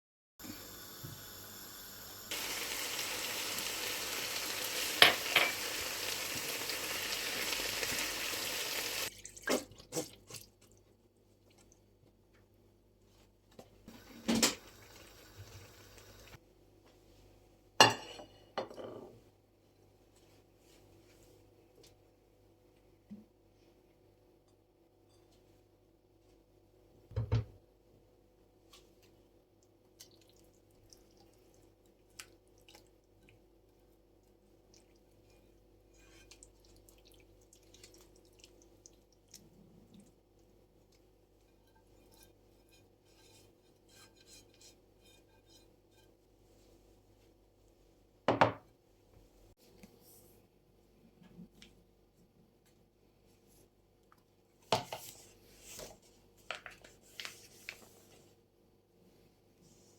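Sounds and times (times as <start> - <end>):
dishes and cutlery clattering: 5.0 - 5.7.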